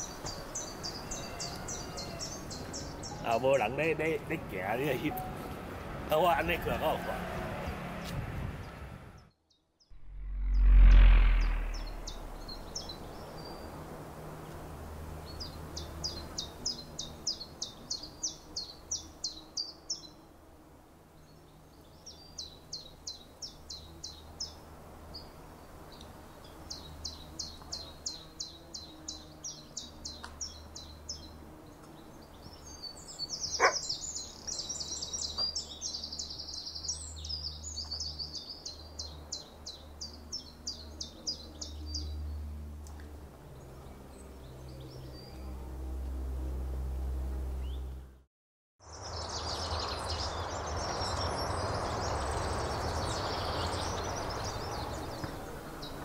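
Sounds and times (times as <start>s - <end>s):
steady low hum: 10.0s - 12.8s.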